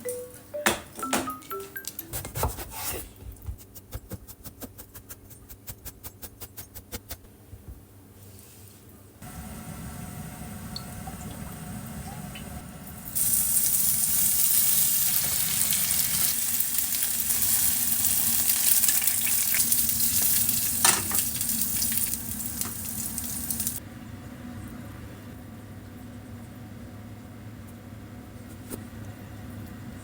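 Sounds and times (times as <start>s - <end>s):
food sizzling in a frying pan: 13.0s - 23.8s.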